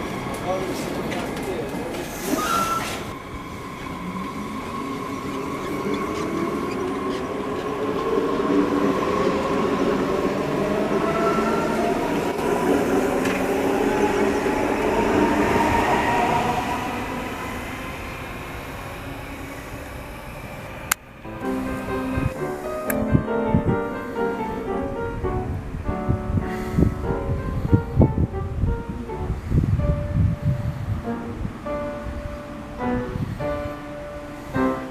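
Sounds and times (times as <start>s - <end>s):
traction motors whining: 0.0s - 23.0s
wheels rumbling on rails: 0.0s - 34.9s.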